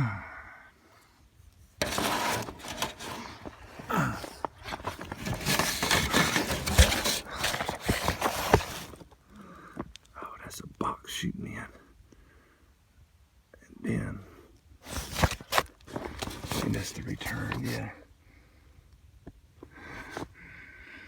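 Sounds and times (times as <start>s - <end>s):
rustling on plastic sheeting: 1.8s - 9.1s, 14.8s - 17.8s.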